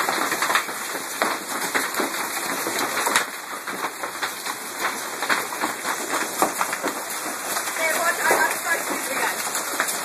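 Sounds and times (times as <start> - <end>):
hail and rain pattering: 0.0 - 10.0.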